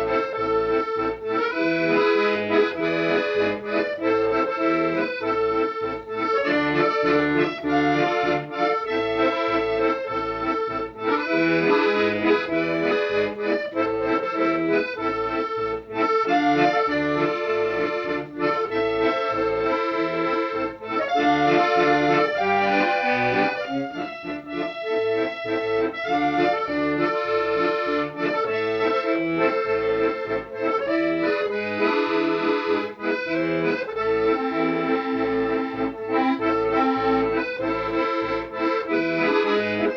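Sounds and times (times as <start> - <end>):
accordion music: 0.0 - 39.9
pulsing bass accompaniment: 0.0 - 39.9.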